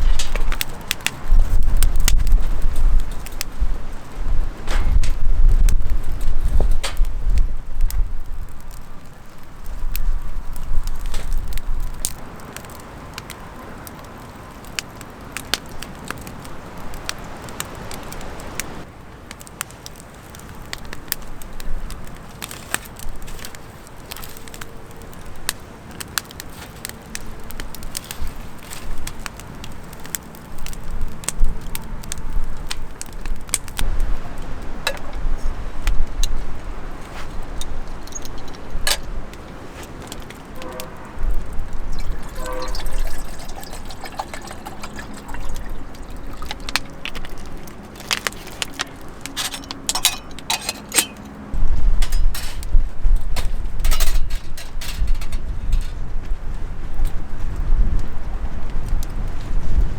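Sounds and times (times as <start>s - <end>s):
campfire crackling and popping: 0.0s - 59.9s
low rumbles: 33.7s - 56.5s.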